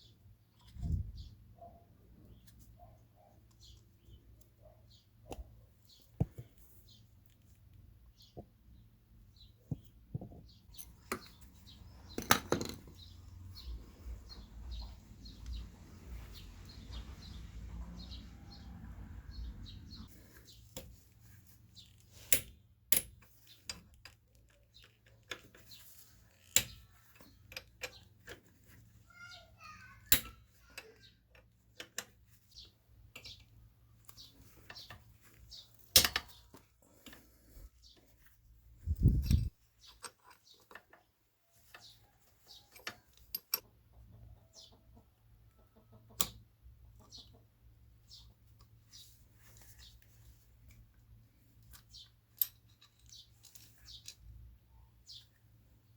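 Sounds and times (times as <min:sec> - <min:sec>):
metal tools clicking and knocking: 0:09.7 - 0:13.1, 0:22.3 - 0:28.4, 0:33.1 - 0:35.0, 0:35.7 - 0:37.2, 0:41.6 - 0:43.7, 0:51.7 - 0:54.3.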